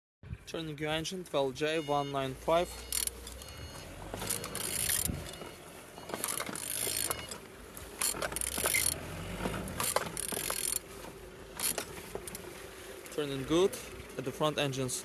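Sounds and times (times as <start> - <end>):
ratchet wrench clicking: 2.8 - 3.6, 4.2 - 5.4, 6.2 - 7.4, 8.0 - 9.0, 9.8 - 10.8, 11.6 - 12.4.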